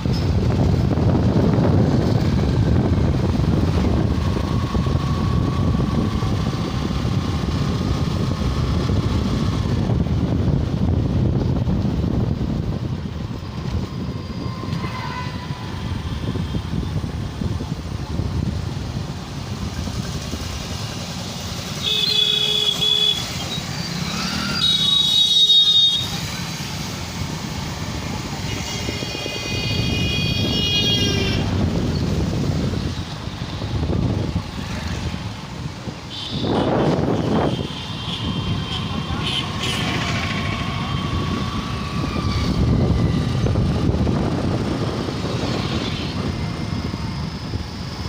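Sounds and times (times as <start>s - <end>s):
low rumble of traffic: 0.0s - 48.0s
vehicle horns honking: 21.7s - 23.6s, 24.2s - 26.2s, 28.4s - 31.6s, 36.1s - 41.0s.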